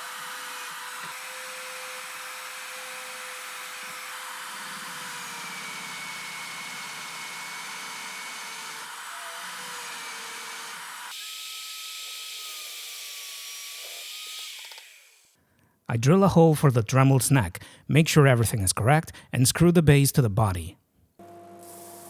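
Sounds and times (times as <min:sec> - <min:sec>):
power tool motor running: 0:00.0 - 0:15.3, 0:21.2 - 0:22.0.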